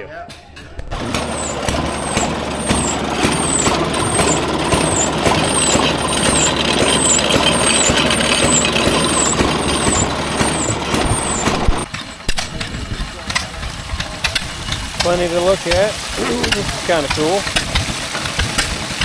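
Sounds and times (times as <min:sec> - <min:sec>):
ice cream freezer motor running: 0:00.9 - 0:19.0
short high squeak: 0:01.0 - 0:11.9.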